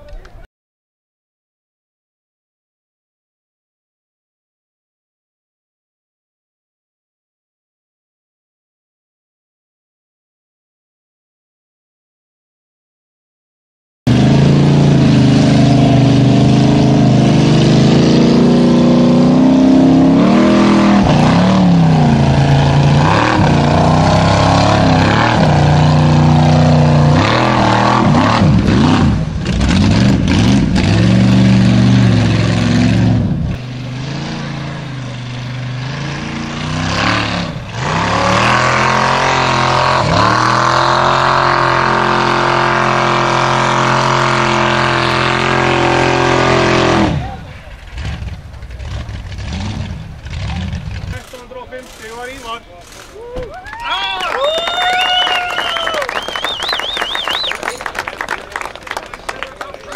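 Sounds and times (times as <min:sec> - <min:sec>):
off-road car engine revving hard: 0:14.1 - 0:53.2.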